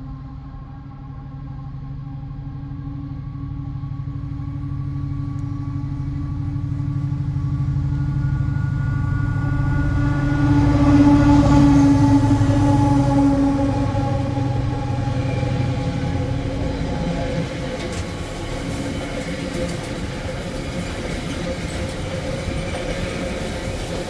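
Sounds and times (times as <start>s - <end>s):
low rumble: 0.0s - 20.8s
diesel train engine: 0.0s - 24.0s.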